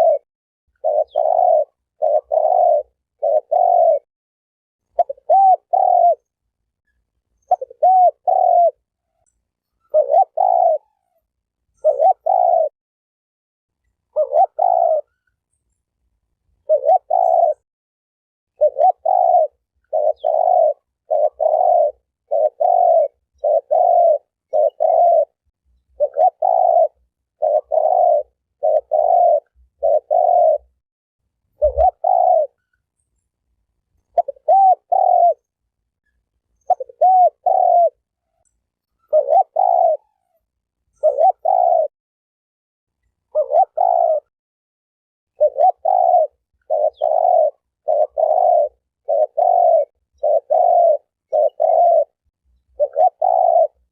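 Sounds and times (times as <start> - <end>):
dove cooing: 0.0 - 4.1, 4.9 - 6.4, 7.4 - 9.2, 9.8 - 12.8, 14.1 - 15.4, 16.6 - 17.6, 18.6 - 30.8, 31.5 - 32.7, 34.0 - 35.5, 36.6 - 38.4, 39.0 - 41.9, 43.2 - 44.3, 45.3 - 53.9.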